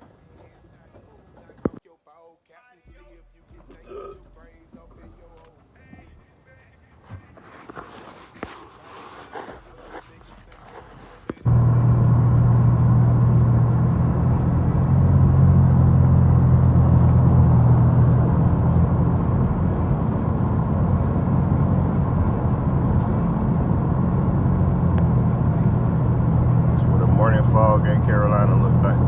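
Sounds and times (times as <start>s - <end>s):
road and tyre noise: 7.1s - 29.0s
car engine hum: 9.6s - 29.0s.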